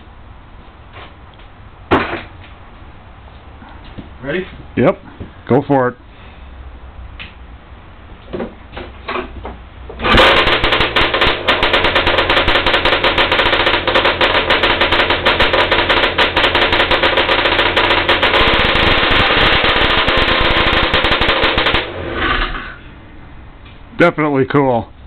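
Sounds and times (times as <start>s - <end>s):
snowmobile engine starting and running: 10.0s - 22.9s.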